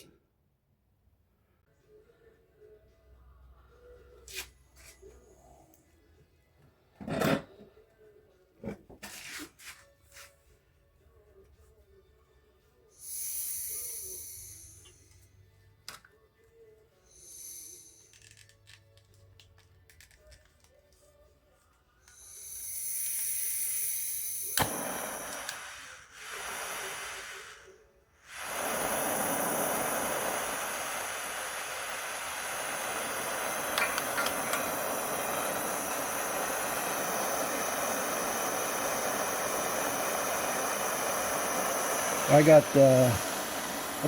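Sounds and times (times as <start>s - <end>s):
propane torch hissing: 13.0s - 15.3s, 17.1s - 18.4s, 22.1s - 44.0s.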